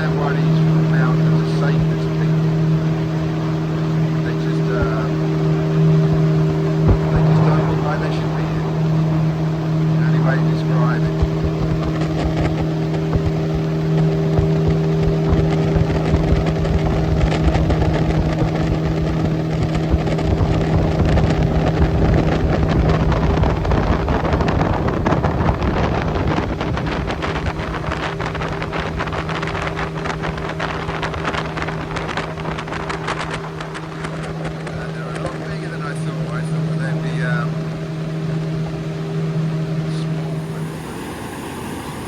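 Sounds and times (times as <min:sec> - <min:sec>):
boat motor running: 0:00.0 - 0:42.0
wind buffeting microphone: 0:00.0 - 0:42.0
loud rushing noise: 0:05.1 - 0:11.7, 0:39.9 - 0:42.0.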